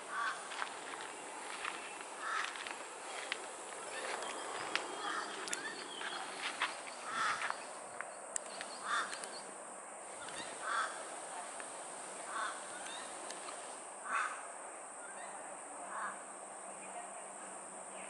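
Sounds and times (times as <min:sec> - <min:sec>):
bird calling: 0:00.0 - 0:09.5, 0:10.1 - 0:14.4.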